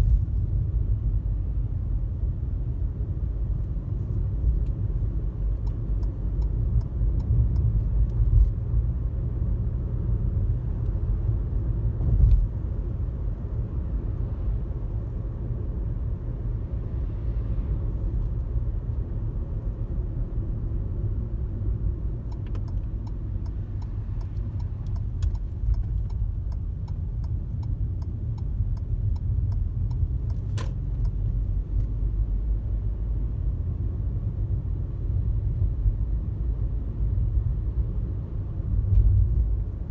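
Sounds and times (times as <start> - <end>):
car road rumble: 0.0 - 39.9
faint regular ticking: 22.3 - 31.2.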